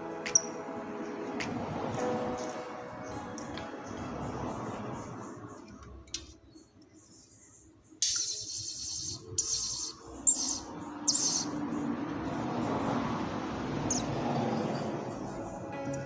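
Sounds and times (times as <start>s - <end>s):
bird chirping: 4.8s - 11.9s, 13.8s - 16.0s.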